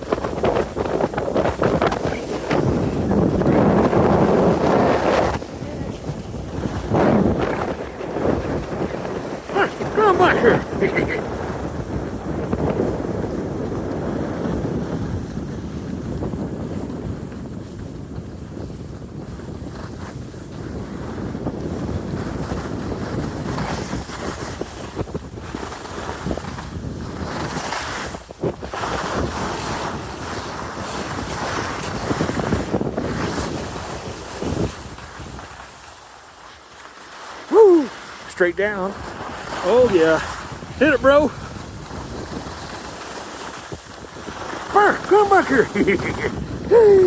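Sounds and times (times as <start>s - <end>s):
wind rushing over microphone: 0.0s - 35.8s, 37.4s - 47.0s
skis scraping on snow: 0.0s - 47.0s.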